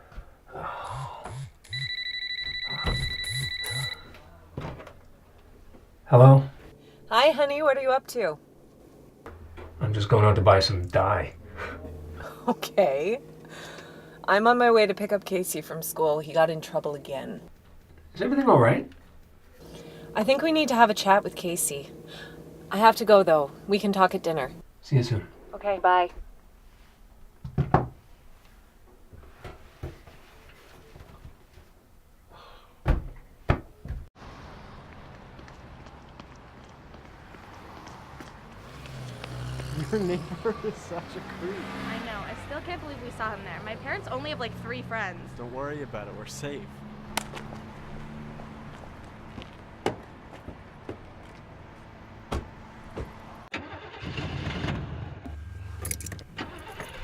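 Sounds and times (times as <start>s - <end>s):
engine steady low hum: 2.9s - 25.7s, 34.2s - 53.5s, 55.1s - 57.0s
car engine cranking: 9.3s - 24.6s, 37.8s - 44.4s, 51.0s - 57.0s
door thumping shut: 52.3s - 53.2s.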